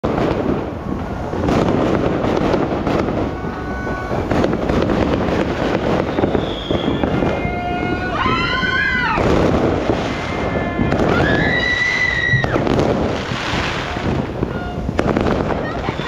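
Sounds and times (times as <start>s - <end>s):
firework whistles: 0.0s - 16.0s
fireworks crackling and banging: 0.0s - 16.0s
wavering whistle-like tone: 5.6s - 7.2s.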